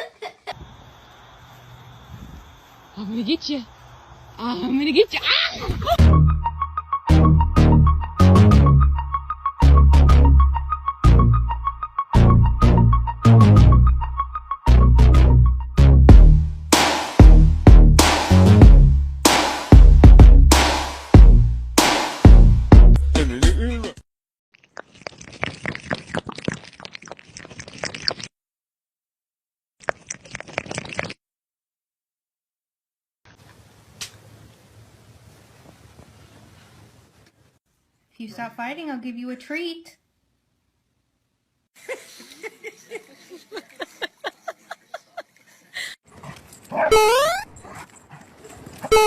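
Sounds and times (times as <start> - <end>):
crunching and chewing: 24.6 - 28.3, 29.8 - 31.2
dog whining: 46.7 - 47.6
dog whimpering and yipping: 46.7 - 47.8.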